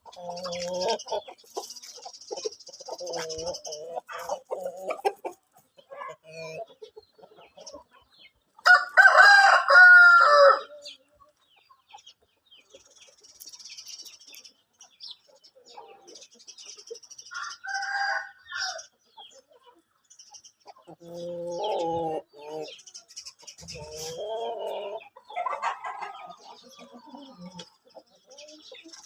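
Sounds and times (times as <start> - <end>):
chicken clucking: 0.0 - 29.0
rooster crowing: 8.6 - 10.7, 17.3 - 18.8.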